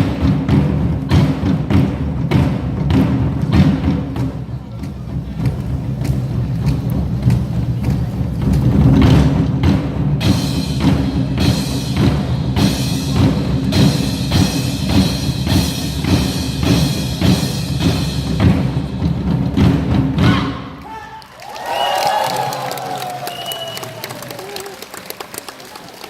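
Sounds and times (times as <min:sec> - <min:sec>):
backing music: 0:00.0 - 0:20.7
group striking big drums: 0:00.0 - 0:20.8.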